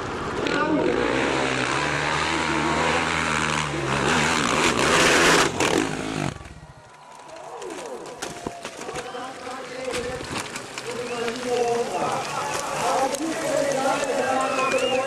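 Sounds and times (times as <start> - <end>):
motocross engine revving: 0.1 - 6.5.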